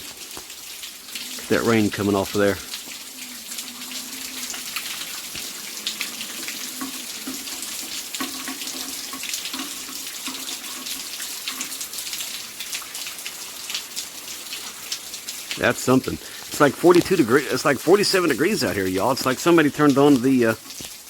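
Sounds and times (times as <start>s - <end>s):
rainwater dripping off an edge: 0.0s - 21.0s
steady rain: 0.0s - 21.0s.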